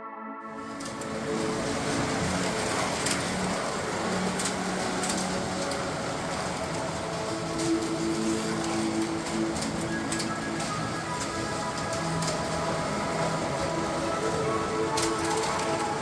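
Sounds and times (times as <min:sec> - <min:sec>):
faint background music: 0:00.0 - 0:16.0
slot cars whirring on track: 0:00.5 - 0:16.0.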